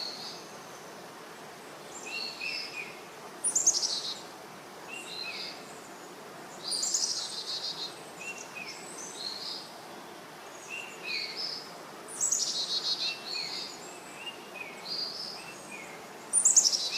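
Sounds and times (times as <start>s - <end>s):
steady background hiss: 0.0s - 16.9s.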